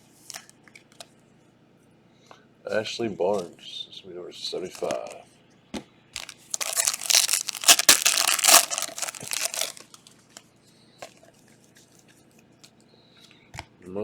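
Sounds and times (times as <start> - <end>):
cards clicking: 4.8 - 5.2
wrapper tearing and crinkling: 4.8 - 5.2, 6.2 - 10.1.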